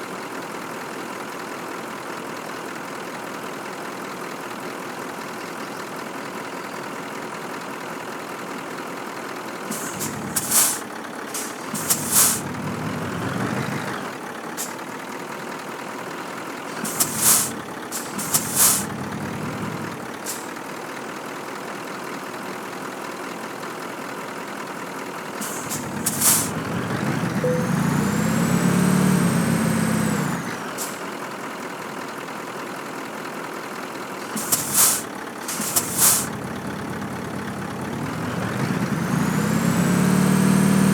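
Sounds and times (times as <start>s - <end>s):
truck diesel engine running: 0.6s - 40.9s
air brake hisses: 9.7s - 14.0s, 14.6s - 14.9s, 16.7s - 20.6s, 25.4s - 28.5s, 29.8s - 31.1s, 34.2s - 36.5s.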